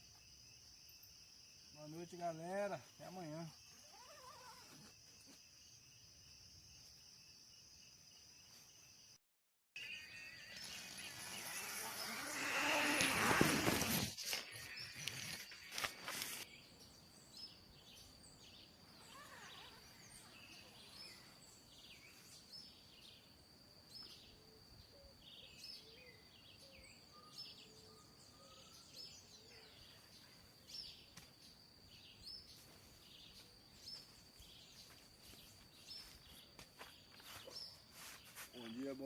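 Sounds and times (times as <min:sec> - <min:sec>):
high-pitched insect drone: 0:09.8 - 0:16.4.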